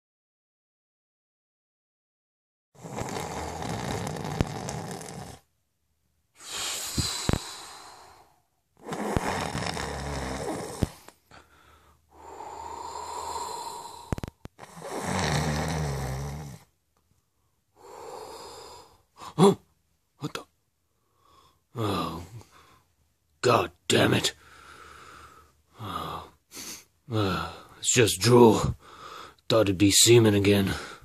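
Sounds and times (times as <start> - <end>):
man snoring: 2.8 - 5.5, 6.4 - 11.0, 12.1 - 16.7, 17.8 - 19.0, 21.8 - 22.4, 25.8 - 26.4.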